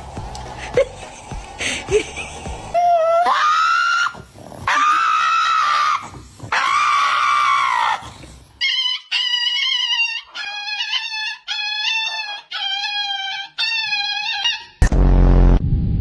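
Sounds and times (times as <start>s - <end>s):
animal long high-pitched cries: 2.8s - 14.8s.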